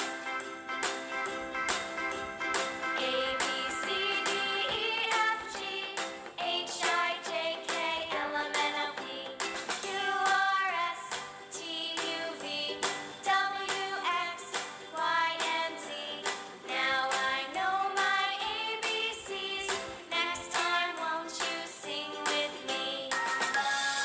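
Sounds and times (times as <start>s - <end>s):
song with high singing voice: 2.9s - 24.0s.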